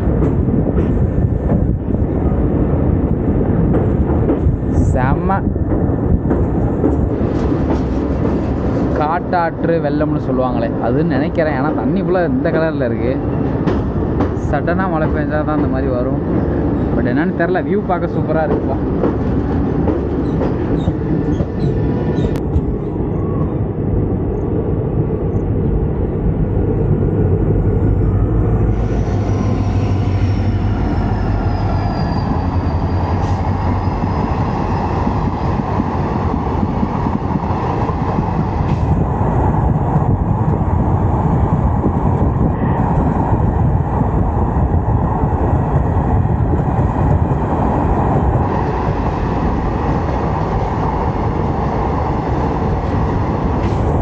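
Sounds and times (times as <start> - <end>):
train wheels rumbling on rails: 0.0 - 54.0
faint high squeal: 28.8 - 35.0.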